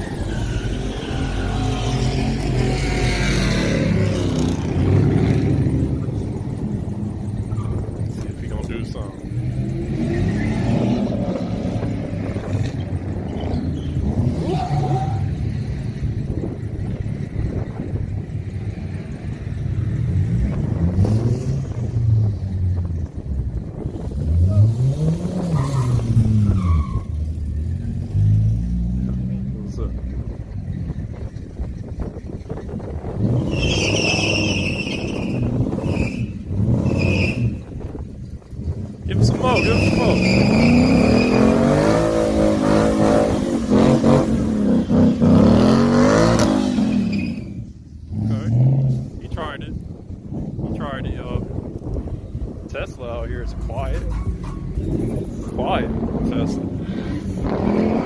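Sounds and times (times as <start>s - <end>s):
tires squealing: 0.0s - 15.8s, 23.8s - 49.6s
car engine rumbling: 0.0s - 58.0s
car engine revving hard: 20.0s - 22.2s, 24.0s - 26.7s, 38.7s - 47.4s, 54.8s - 58.0s.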